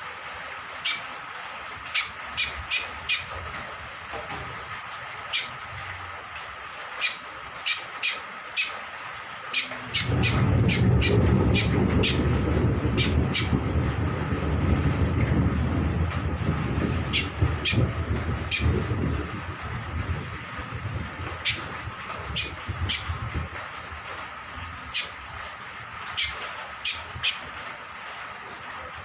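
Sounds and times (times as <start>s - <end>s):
loud low rushing noise: 10.0s - 23.5s.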